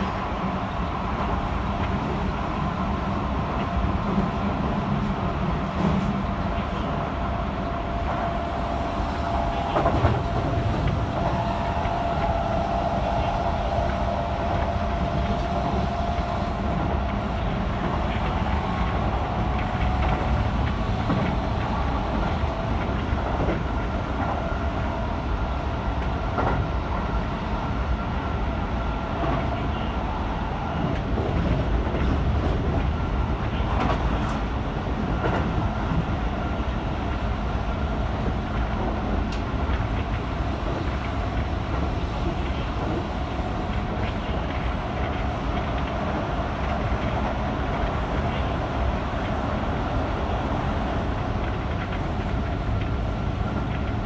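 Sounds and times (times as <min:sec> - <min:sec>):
electric train rumbling: 0:00.0 - 0:54.0.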